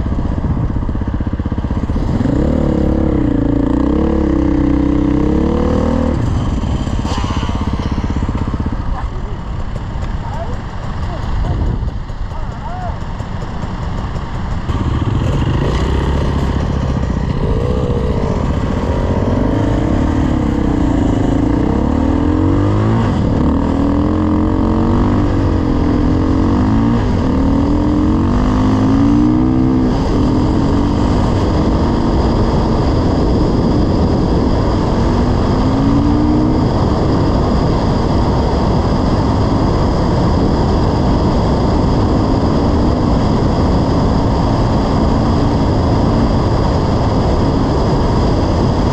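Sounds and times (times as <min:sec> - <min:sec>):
low rumble: 0:00.0 - 0:48.9
dirt bike engine revving: 0:01.6 - 0:09.0, 0:13.0 - 0:47.7.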